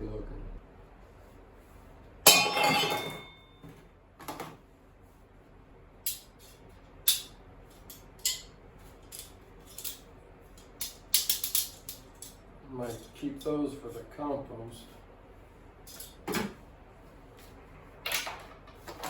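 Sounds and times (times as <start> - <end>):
small metal pieces clinking: 10.6 - 12.4.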